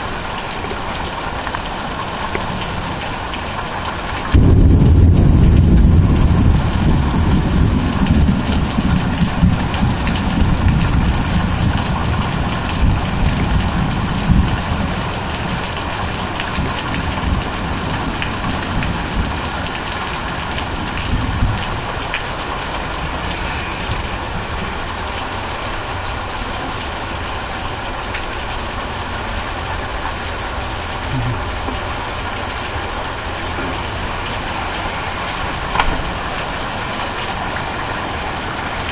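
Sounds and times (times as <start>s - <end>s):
steady rain: 0.0s - 38.9s
thunder rumbling: 4.2s - 25.0s.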